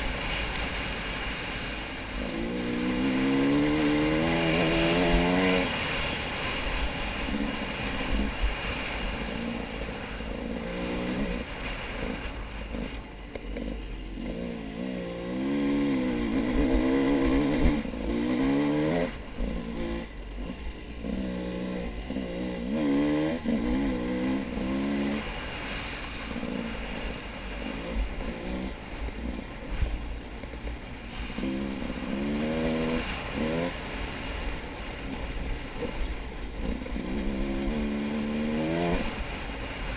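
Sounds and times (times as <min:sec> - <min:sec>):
vehicle engine revving: 0:00.0 - 0:39.9.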